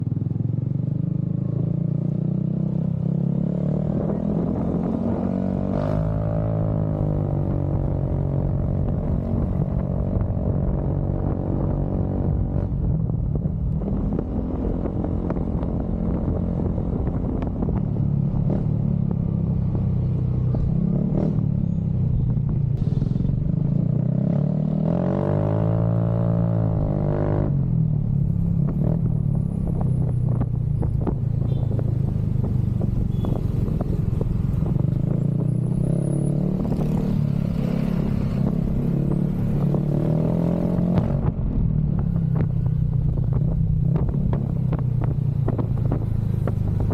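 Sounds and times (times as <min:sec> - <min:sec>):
motorcycle engine revving: 0:00.2 - 0:22.2, 0:22.8 - 0:46.9
motorcycle exhaust running: 0:26.6 - 0:35.7, 0:40.6 - 0:46.9.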